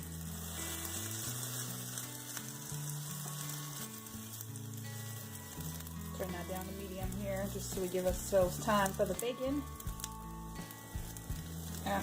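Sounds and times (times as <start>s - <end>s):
low background music: 0.0s - 12.0s
potato slices sizzling: 0.0s - 12.0s.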